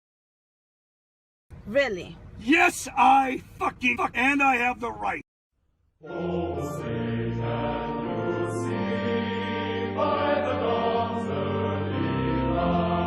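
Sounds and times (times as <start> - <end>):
choir singing held chords: 6.0 - 13.0.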